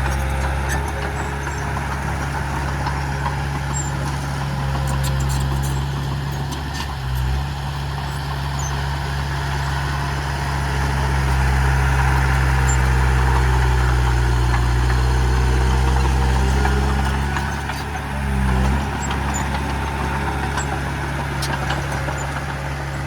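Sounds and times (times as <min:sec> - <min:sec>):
heavy diesel engine running: 0:00.0 - 0:23.0.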